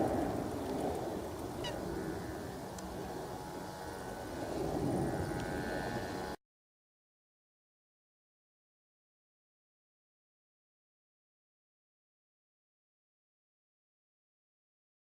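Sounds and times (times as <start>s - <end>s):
distant jet airliner rumble: 0.0s - 6.4s.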